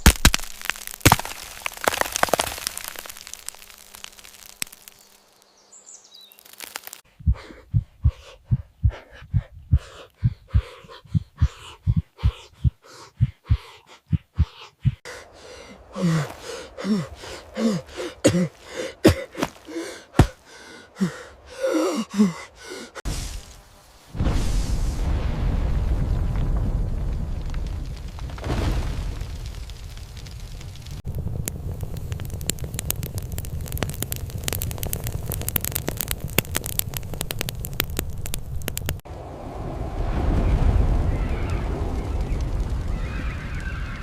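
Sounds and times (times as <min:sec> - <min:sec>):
crackling: 0:00.0 - 0:07.1, 0:14.9 - 0:39.1, 0:40.0 - 0:44.0
rapid low thuds: 0:07.1 - 0:15.1, 0:19.0 - 0:20.4
short gasps: 0:07.1 - 0:23.0.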